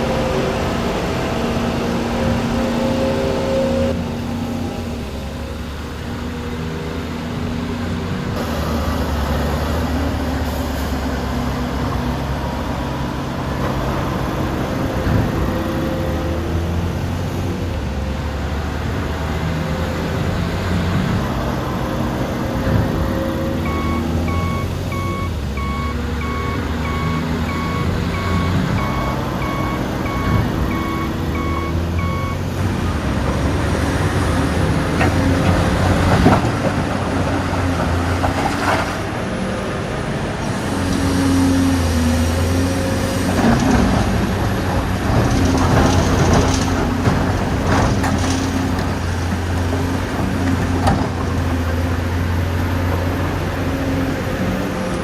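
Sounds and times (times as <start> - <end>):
construction machinery running: 0.0 - 55.0
reversing alarm beeping: 23.6 - 32.5.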